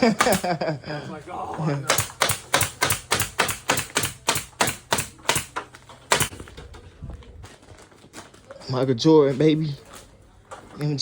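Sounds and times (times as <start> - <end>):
staple gun clacks: 1.9 - 6.3.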